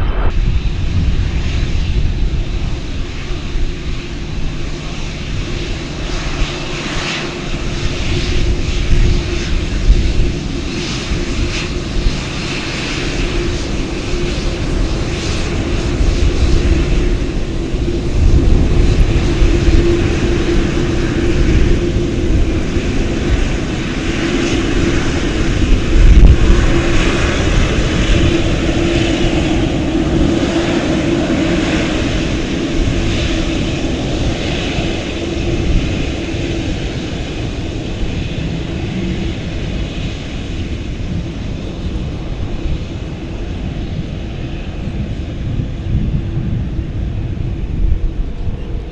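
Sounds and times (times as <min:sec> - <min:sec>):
airplane engines roaring: 0:00.0 - 0:48.9.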